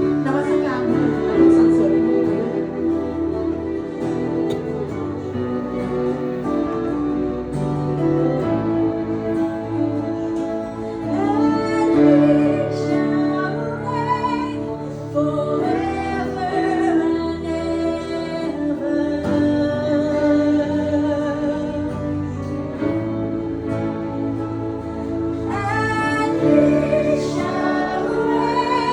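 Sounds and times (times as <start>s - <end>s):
acoustic instrumental accompaniment: 0.0s - 28.9s
person singing worship song: 9.0s - 28.9s.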